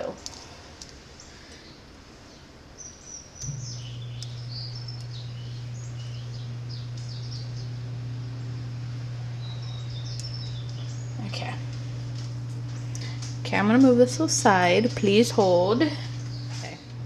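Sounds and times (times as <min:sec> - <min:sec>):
steady low hum: 0:00.0 - 0:17.0
small birds chirping: 0:01.1 - 0:13.4, 0:16.1 - 0:16.9.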